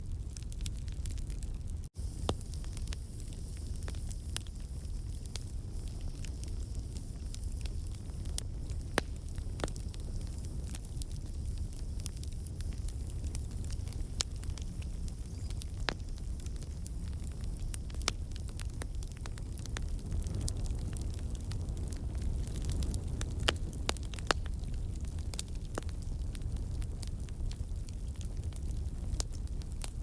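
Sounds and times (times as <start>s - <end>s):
fire flames rumbling: 0.0s - 30.0s
wood crackling and popping: 0.0s - 30.0s.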